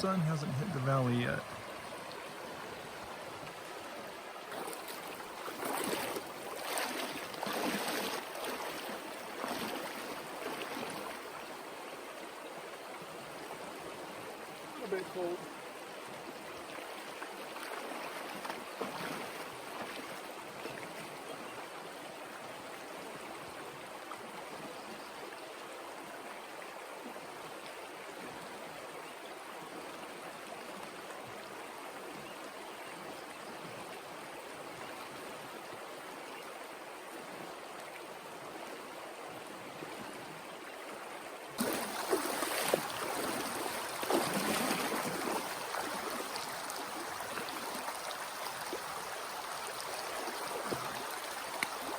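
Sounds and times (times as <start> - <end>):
river rushing: 0.0 - 11.4, 41.6 - 51.9.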